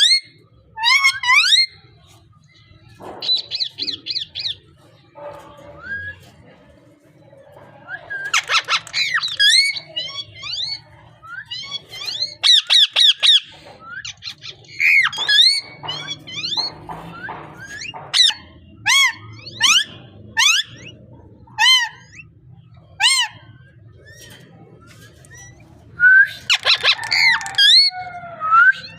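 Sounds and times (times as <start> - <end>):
parrot squawking and whistling: 0.0 - 1.8, 7.9 - 16.6, 24.9 - 28.9.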